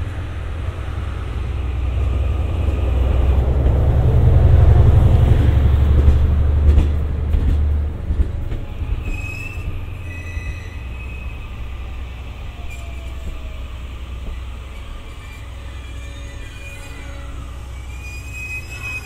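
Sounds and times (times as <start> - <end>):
train diesel rumble: 0.0 - 19.0
wheel squeals: 8.7 - 11.5, 14.3 - 19.0.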